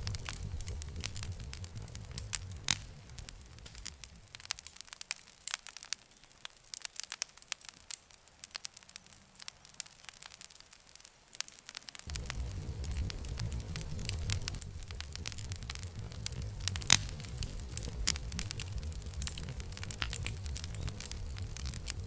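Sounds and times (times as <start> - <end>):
low rumble: 0.0 - 4.6, 12.1 - 22.0
wood fire crackling: 0.0 - 22.0.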